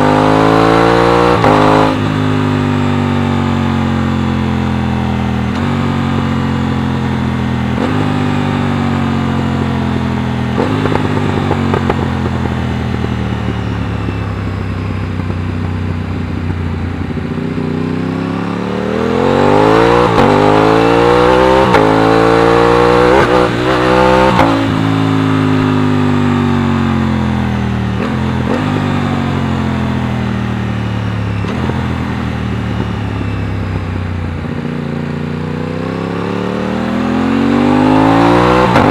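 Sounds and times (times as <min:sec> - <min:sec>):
gear changes: 0:00.0 - 0:35.0, 0:35.8 - 0:38.9
motorcycle engine revving: 0:00.0 - 0:38.9.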